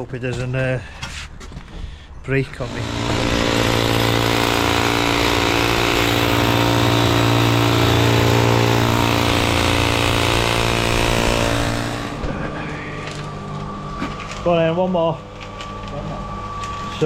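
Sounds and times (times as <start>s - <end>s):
small engine running steadily: 2.7s - 13.2s.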